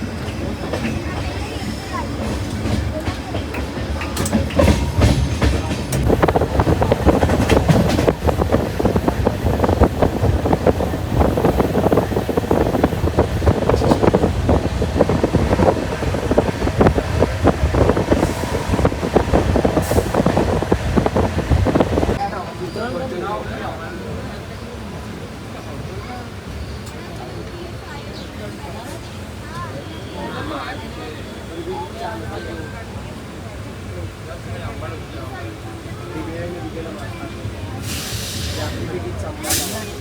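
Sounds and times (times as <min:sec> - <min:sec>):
train wheels clattering on rails: 0:00.0 - 0:22.2
train rumble: 0:00.0 - 0:30.1, 0:30.8 - 0:40.0.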